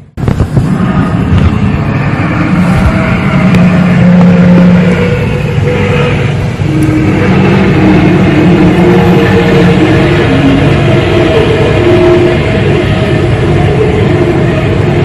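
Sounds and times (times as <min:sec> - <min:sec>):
loud low droning: 0:00.0 - 0:15.0.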